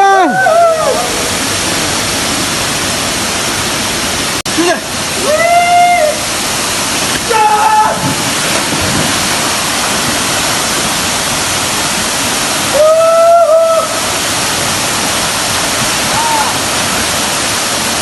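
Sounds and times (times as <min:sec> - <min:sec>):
person shouting: 0:00.0 - 0:01.2, 0:07.3 - 0:08.0, 0:16.1 - 0:16.6
waterfall rushing: 0:00.0 - 0:18.0.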